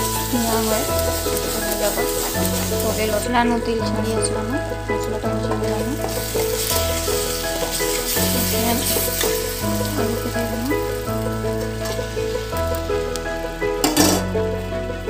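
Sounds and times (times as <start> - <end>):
spice paste sizzling in a pan: 0.0 - 13.8
background music with bass line: 0.0 - 15.0
spoon stirring in a pan: 0.1 - 3.1, 5.0 - 13.1.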